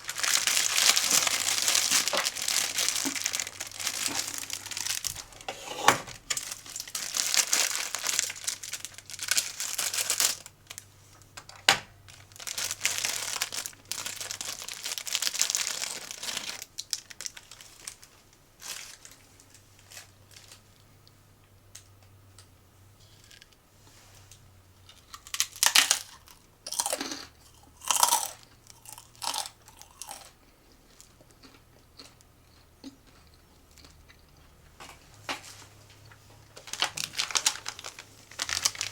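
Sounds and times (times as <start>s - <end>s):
plastic packaging crinkling: 0.0s - 10.9s, 11.5s - 20.8s, 36.5s - 38.9s.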